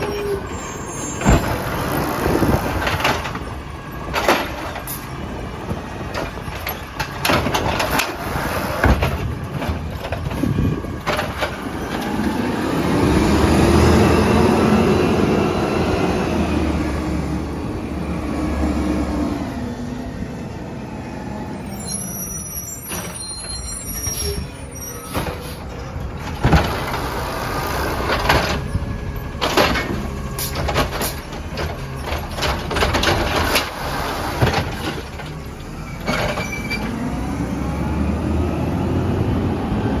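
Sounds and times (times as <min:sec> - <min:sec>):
brief high squeal: 0:00.0 - 0:01.4, 0:21.6 - 0:25.6
garbage truck engine running: 0:00.0 - 0:21.7, 0:22.6 - 0:40.0.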